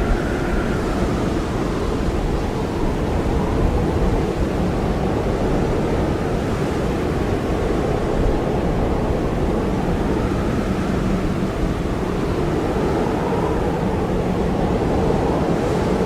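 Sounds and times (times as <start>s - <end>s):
faint wavering whistle: 0.0s - 3.7s
blizzard wind blowing: 0.0s - 16.0s.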